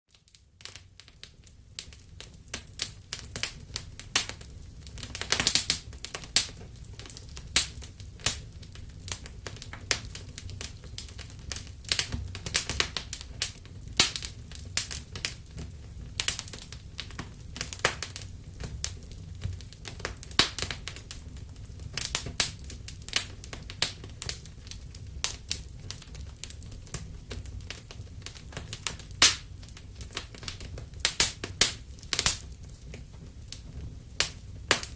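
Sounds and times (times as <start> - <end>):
low rumble of burning fire: 0.1 - 34.9
wood fire crackling and popping: 0.1 - 34.9.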